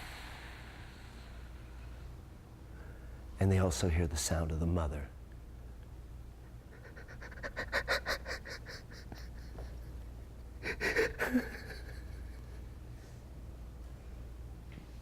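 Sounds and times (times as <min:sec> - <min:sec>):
man sobbing: 0:06.7 - 0:10.0, 0:10.6 - 0:12.5.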